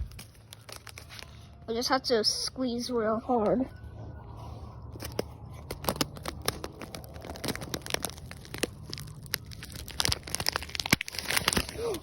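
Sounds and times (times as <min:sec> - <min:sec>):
plastic pouch crinkling: 0:00.0 - 0:01.6, 0:04.9 - 0:12.0.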